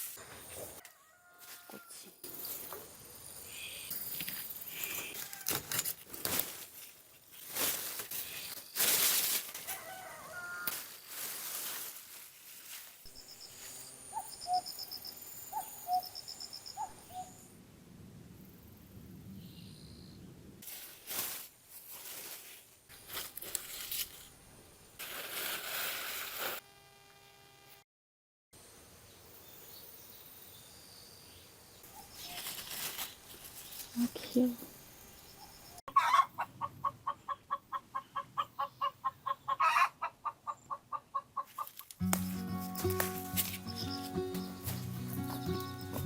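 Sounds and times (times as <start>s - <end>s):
rustling and crinkling: 4.1s - 13.8s, 20.6s - 24.4s, 32.0s - 34.6s, 41.5s - 46.0s
chicken clucking: 35.9s - 41.8s.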